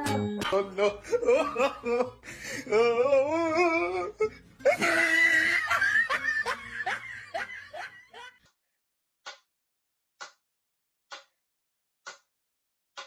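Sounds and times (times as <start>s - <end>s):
person laughing hard: 0.5s - 8.4s.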